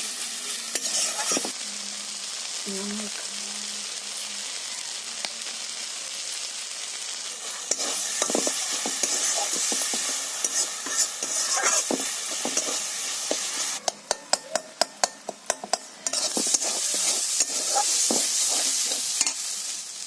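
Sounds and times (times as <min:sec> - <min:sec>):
food sizzling in hot oil: 0:00.0 - 0:20.0
spatula scraping a pan: 0:00.7 - 0:01.5, 0:07.6 - 0:13.8, 0:15.5 - 0:19.6.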